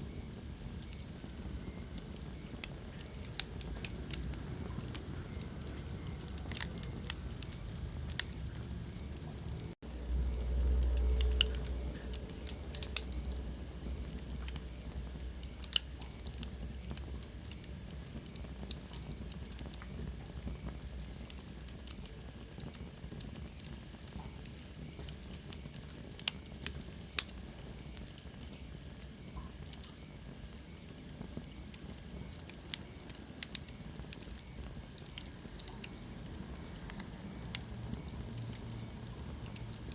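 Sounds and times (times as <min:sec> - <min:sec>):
fire popping: 0:00.0 - 0:39.9
wood fire crackling: 0:00.0 - 0:39.9
low rumble: 0:03.6 - 0:15.4.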